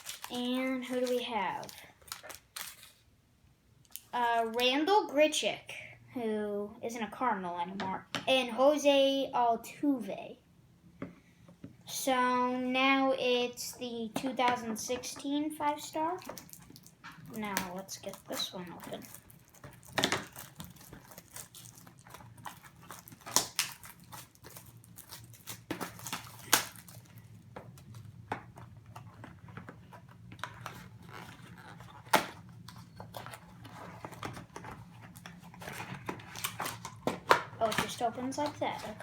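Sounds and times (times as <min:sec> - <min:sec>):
card box packaging clicks and scrapes: 0:28.9 - 0:39.0.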